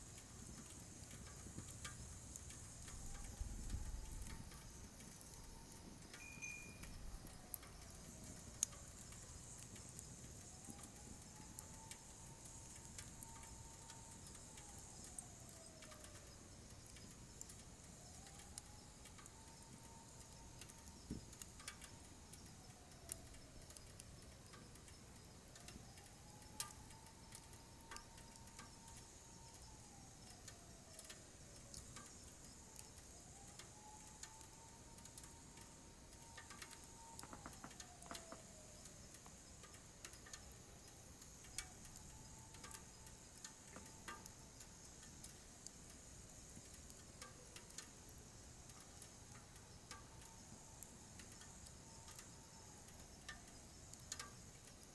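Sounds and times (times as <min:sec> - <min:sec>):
wood fire crackling in stove: 0:00.0 - 0:54.9
faint sliding whistling tone: 0:02.8 - 0:38.8.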